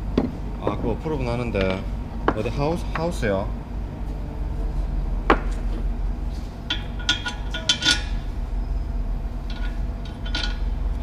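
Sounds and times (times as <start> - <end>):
steady low hum: 0.0 - 11.0
metal objects clinking: 6.6 - 8.3, 9.4 - 10.8.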